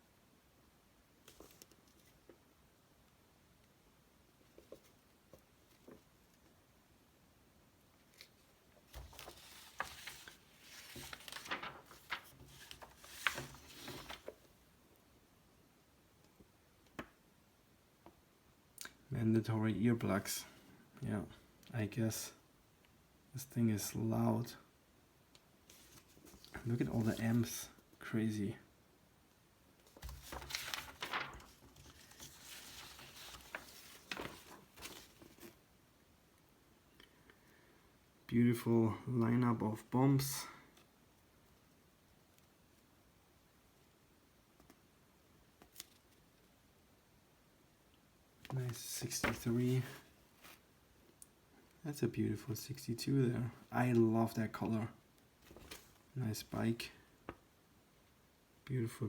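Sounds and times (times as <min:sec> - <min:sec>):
paper crinkling: 0:08.9 - 0:14.4, 0:25.7 - 0:27.6, 0:29.9 - 0:35.6, 0:48.7 - 0:50.6, 0:55.4 - 0:56.0
paper rustling and sliding: 0:08.9 - 0:14.4, 0:25.7 - 0:27.6, 0:29.9 - 0:35.6, 0:48.6 - 0:50.7, 0:55.4 - 0:56.0.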